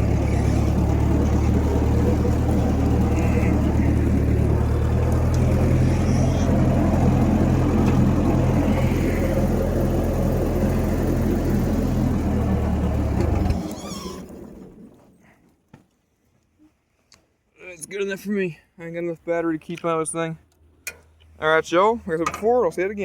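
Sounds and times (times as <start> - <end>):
tractor engine running: 0.0 - 15.3.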